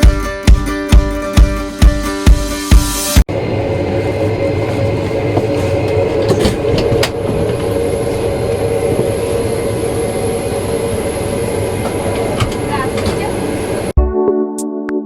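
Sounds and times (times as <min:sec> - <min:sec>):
thin high whine: 0:03.3 - 0:13.9
airliner cabin ventilation hum: 0:03.3 - 0:14.0.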